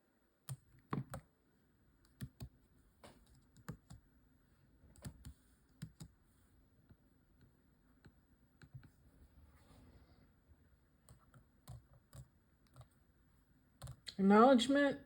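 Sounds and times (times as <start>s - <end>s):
keyboard typing: 0.4s - 1.3s, 2.0s - 2.6s, 3.2s - 4.0s, 4.9s - 6.2s, 7.4s - 9.0s, 11.0s - 13.0s, 13.8s - 14.1s.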